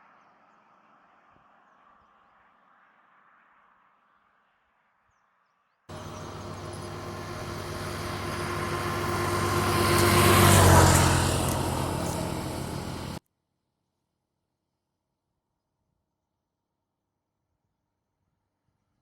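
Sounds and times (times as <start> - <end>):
vehicle engine passing by: 5.9 - 13.2.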